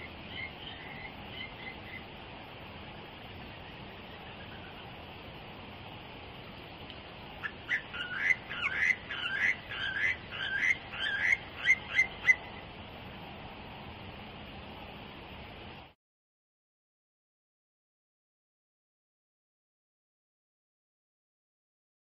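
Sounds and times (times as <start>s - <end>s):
steady hiss: 0.0s - 16.0s
songbird whistling: 7.4s - 12.5s.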